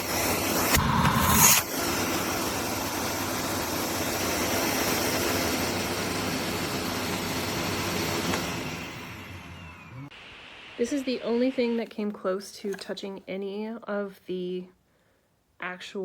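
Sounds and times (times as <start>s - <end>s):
vacuum cleaner running: 0.0s - 12.1s.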